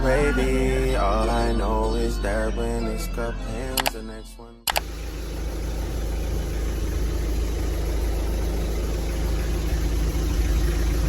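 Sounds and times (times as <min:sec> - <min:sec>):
car engine running: 0:04.7 - 0:11.0.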